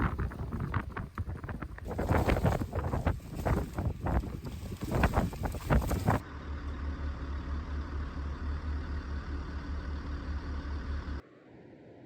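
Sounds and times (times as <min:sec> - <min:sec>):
wind buffeting microphone: 0:00.0 - 0:06.2
vehicle engine idling: 0:01.8 - 0:11.2.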